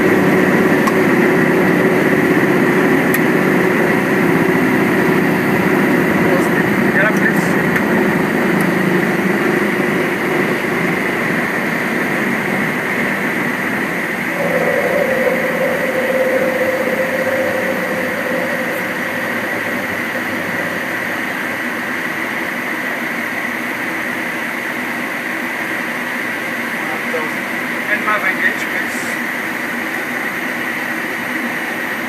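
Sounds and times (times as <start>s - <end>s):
jet engines at climb power: 0.0s - 26.3s
steady high hum: 3.2s - 23.7s
rushing air: 14.1s - 22.5s
cockpit tone: 14.3s - 22.4s.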